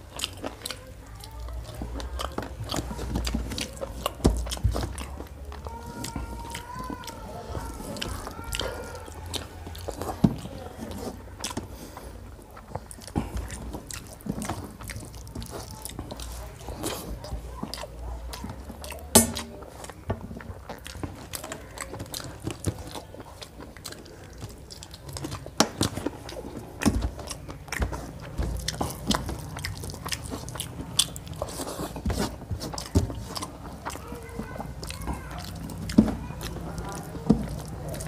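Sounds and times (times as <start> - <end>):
close chewing: 0.0 - 38.0
fingers mixing food on steel plate: 0.0 - 38.0.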